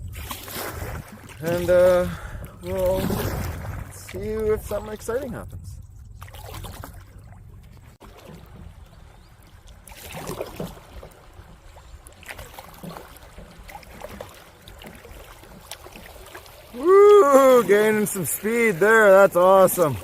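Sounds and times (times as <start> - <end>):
water splashing and rushing: 0.0 - 20.0
low rumble of rapids: 13.4 - 20.0.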